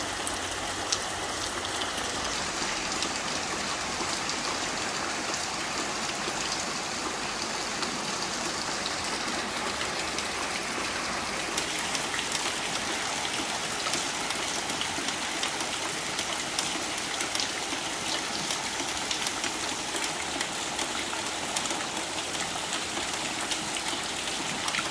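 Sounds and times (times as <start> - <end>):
rain on a tin roof: 0.0 - 24.9.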